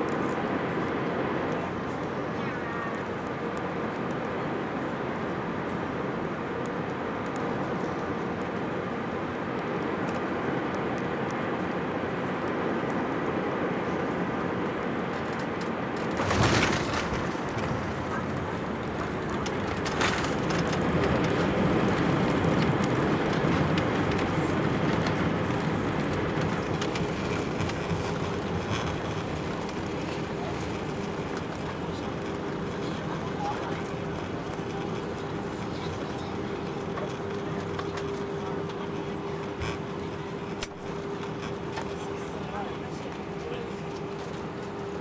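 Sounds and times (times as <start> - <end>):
airliner engines: 0.0 - 45.0
light rattles: 15.2 - 42.3.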